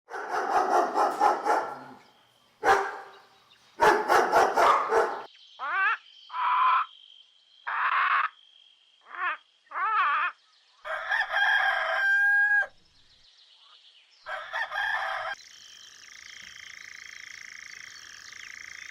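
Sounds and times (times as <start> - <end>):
dog barking: 0.1 - 2.0, 2.6 - 3.2, 3.8 - 5.3
wavering dog calls: 0.1 - 2.0, 2.6 - 3.2, 3.8 - 5.3.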